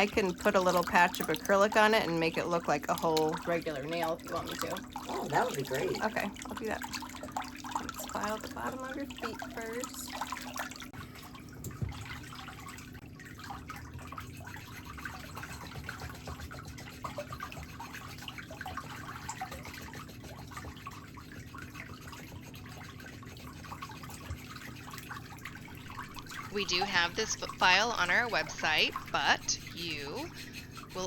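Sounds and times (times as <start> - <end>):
steady low hum: 25.4 - 31.0
foot file rasping on skin: 28.8 - 31.0.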